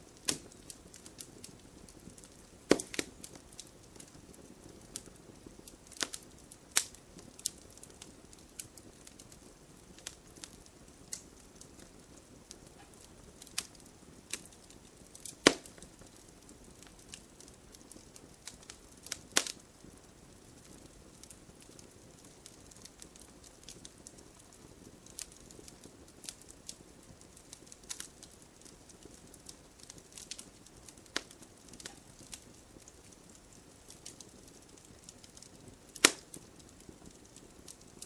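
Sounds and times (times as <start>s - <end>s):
bonfire crackling and popping: 0.0s - 38.0s.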